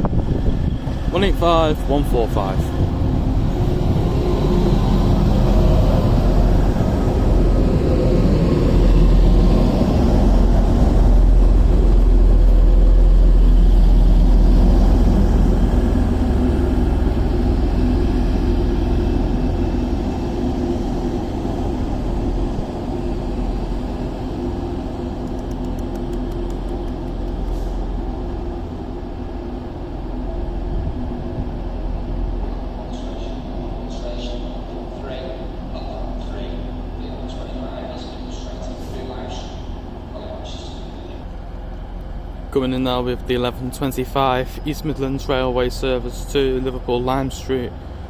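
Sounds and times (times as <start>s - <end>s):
train diesel engines rumbling: 0.0s - 48.0s.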